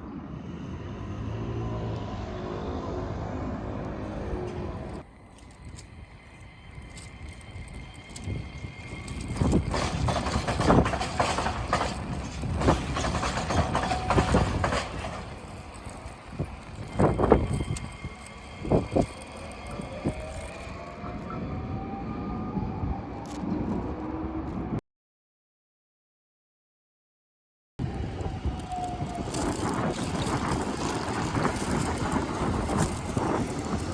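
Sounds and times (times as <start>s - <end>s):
train wheels clanking on crossing: 6.9s - 20.2s
rising whine: 15.6s - 24.8s.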